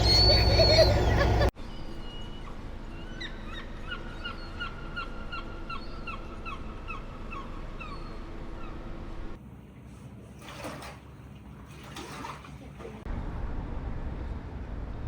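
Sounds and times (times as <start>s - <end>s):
bird calling short falling notes: 0.0s - 8.8s.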